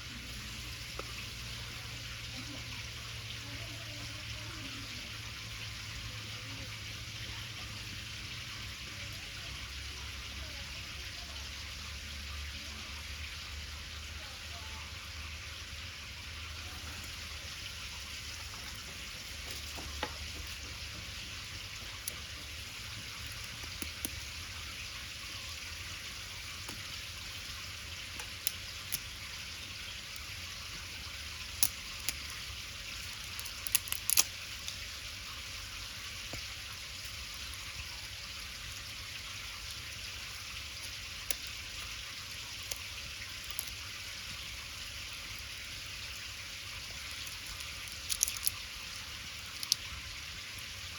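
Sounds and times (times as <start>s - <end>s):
wood fire crackling and popping: 17.0s - 50.9s.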